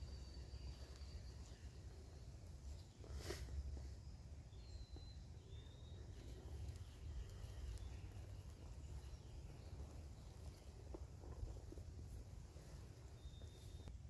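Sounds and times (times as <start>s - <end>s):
faint high bird chirps: 0.0s - 11.6s, 12.6s - 14.0s.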